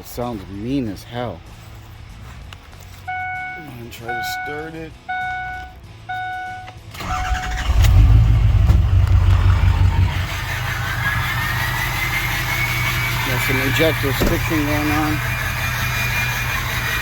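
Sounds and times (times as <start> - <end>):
dashboard warning chime: 3.1 - 6.8
diesel engine cranking and running: 5.1 - 17.0.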